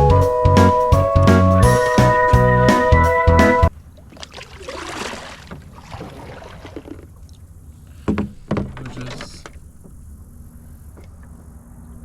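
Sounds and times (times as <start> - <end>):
hollow knocks on canoe hull: 8.0 - 10.0.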